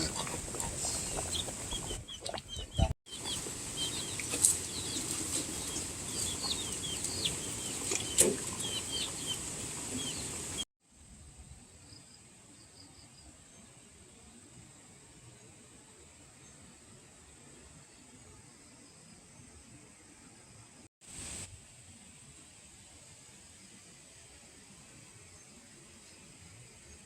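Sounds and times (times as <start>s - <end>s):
chicks peeping: 0.1s - 10.6s
rustling: 3.3s - 8.8s
faint hiss: 21.0s - 27.0s.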